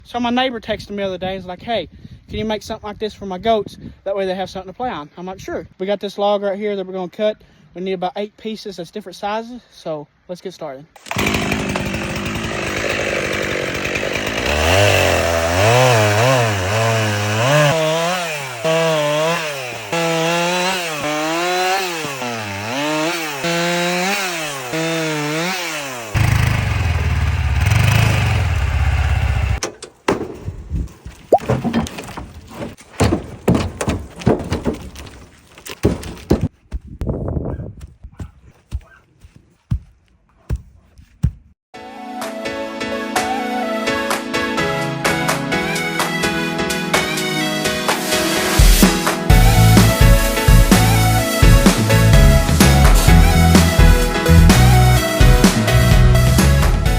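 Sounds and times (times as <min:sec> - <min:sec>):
chainsaw cutting a log: 0:11.0 - 0:29.6, 0:48.0 - 0:56.4
knocks and clatters: 0:29.6 - 0:36.5.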